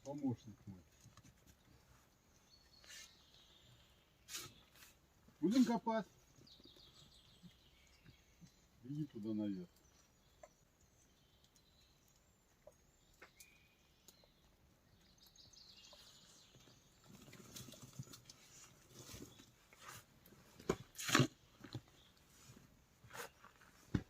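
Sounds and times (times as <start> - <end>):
boar rustling and snuffling: 16.1 - 24.0.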